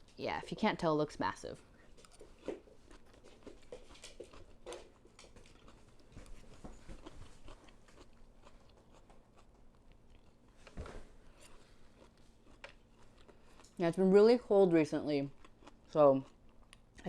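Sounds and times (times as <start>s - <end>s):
person chewing crunchy vegetables: 1.7s - 10.6s, 11.3s - 13.9s, 15.2s - 17.0s.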